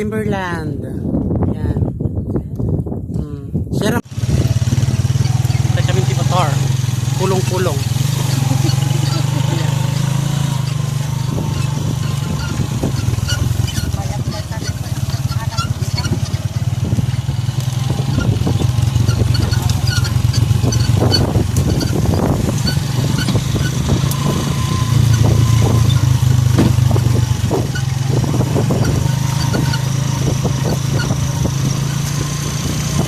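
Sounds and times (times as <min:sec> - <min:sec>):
gusts of wind noise: 0:00.0 - 0:33.0
motorcycle engine running: 0:04.0 - 0:33.0
short knocks: 0:22.6 - 0:32.1.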